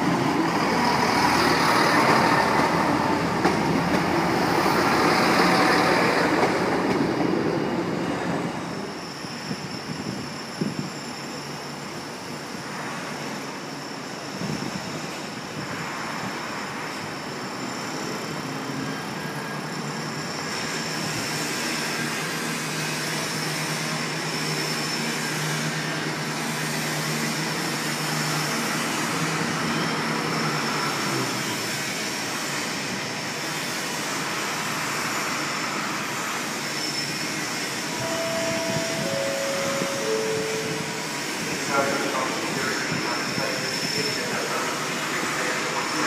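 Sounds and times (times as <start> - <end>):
hum of trains: 0.0 - 46.0
three-note chime: 38.0 - 41.1.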